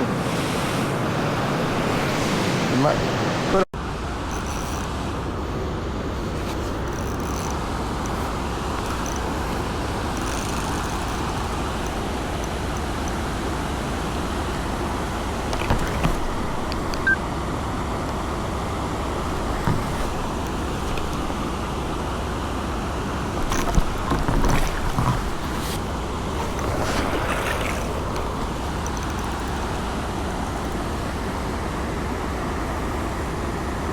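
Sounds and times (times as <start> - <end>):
stream water flowing: 0.0 - 33.9
small knocks and clicks: 6.4 - 17.1, 19.2 - 21.8, 23.2 - 31.2.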